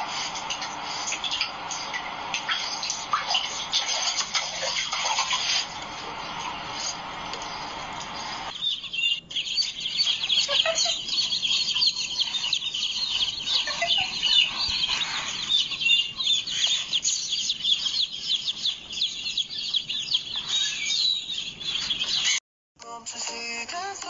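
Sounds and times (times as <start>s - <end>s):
baby chicks peeping: 0.0s - 22.4s.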